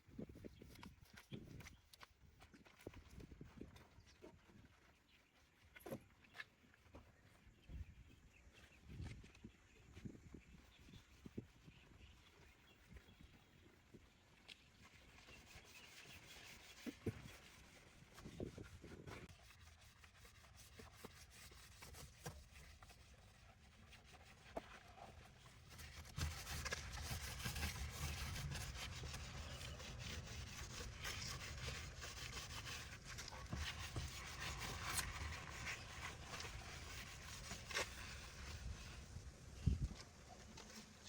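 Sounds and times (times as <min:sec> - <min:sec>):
rough scrubbing: 0:25.8 - 0:39.2.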